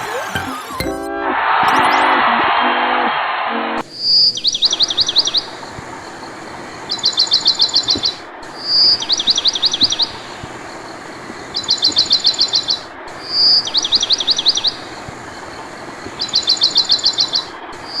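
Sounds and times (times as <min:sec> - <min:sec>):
steady hiss: 0:03.8 - 0:18.0.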